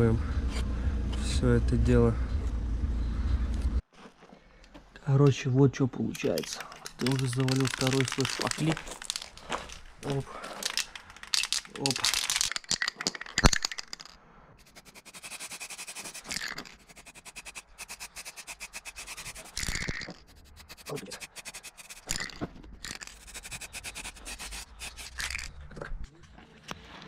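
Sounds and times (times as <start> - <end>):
hand sanding scraping strokes: 14.6 - 22.3, 22.9 - 25.5.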